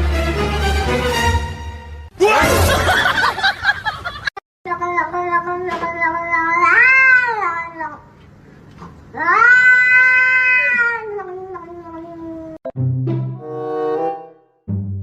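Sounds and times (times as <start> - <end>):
cat yowling: 6.0 - 8.0, 9.2 - 12.6.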